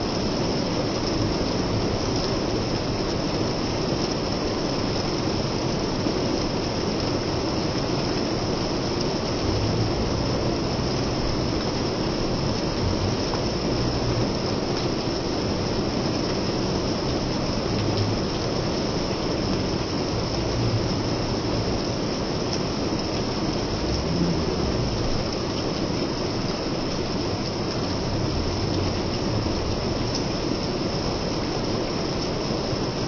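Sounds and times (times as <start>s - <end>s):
steady rain: 0.0s - 33.0s
low rumble: 23.5s - 25.5s.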